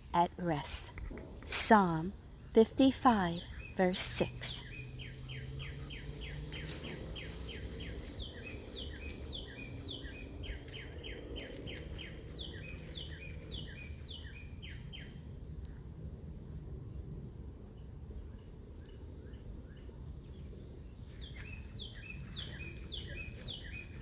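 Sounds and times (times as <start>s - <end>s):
bird chirping rapidly: 0.0s - 15.1s, 21.2s - 24.0s
low background rumble: 0.0s - 24.0s.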